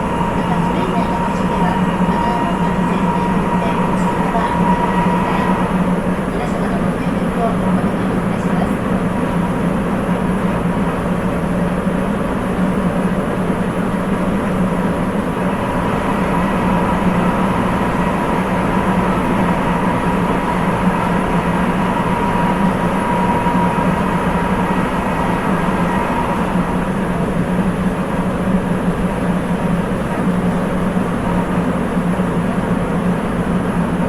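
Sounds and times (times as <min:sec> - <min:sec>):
thin high tone: 0:00.0 - 0:07.4
subway train rumble: 0:00.0 - 0:34.0.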